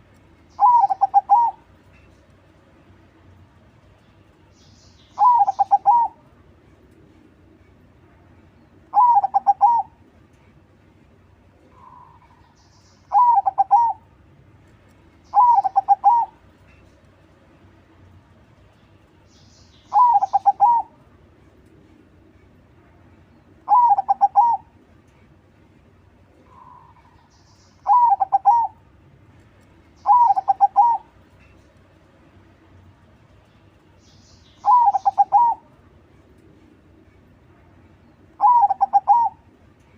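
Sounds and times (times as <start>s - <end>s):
dove cooing: 0.6s - 1.6s, 5.2s - 6.2s, 8.9s - 10.0s, 13.1s - 14.0s, 15.3s - 16.4s, 19.9s - 21.0s, 23.7s - 24.7s, 27.8s - 28.8s, 30.0s - 31.1s, 34.6s - 35.7s, 38.4s - 39.4s.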